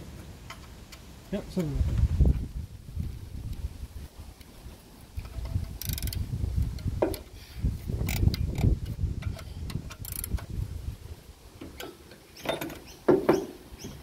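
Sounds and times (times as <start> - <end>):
wind rumble on microphone: 1.7 - 11.5
socket ratchet clicking: 5.7 - 6.2, 8.0 - 10.5.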